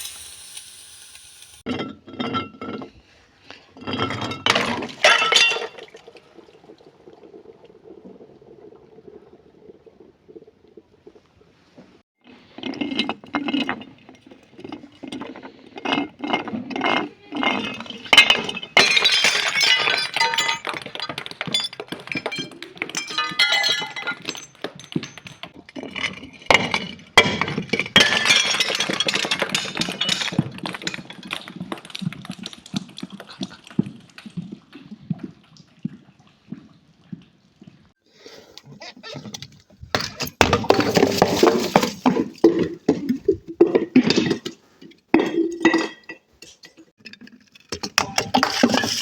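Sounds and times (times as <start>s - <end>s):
glass shards crunching and tinkling: 17.4s - 25.5s
glass cracking: 17.4s - 33.5s.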